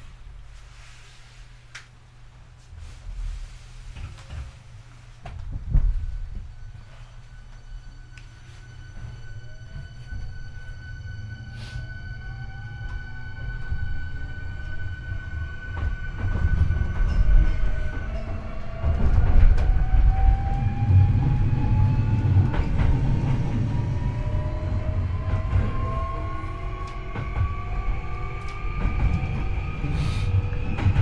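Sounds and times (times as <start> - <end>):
wheels rumbling on rail: 2.8 - 31.0
rail joint clicks: 5.2 - 31.0
electric train motors whining: 6.9 - 31.0.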